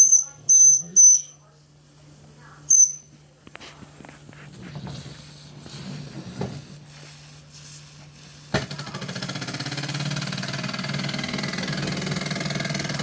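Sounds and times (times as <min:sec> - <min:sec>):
small steam engine running: 0:07.0 - 0:13.0.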